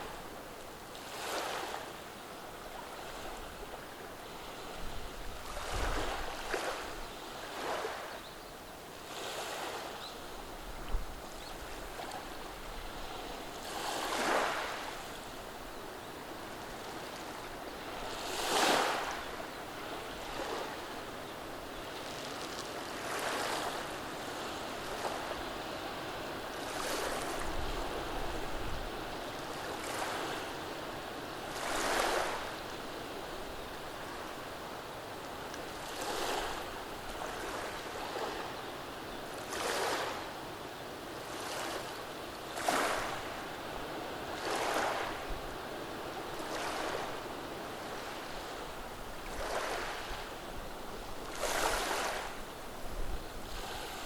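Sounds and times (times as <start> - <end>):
waves washing over pebbles: 51.2 - 52.5.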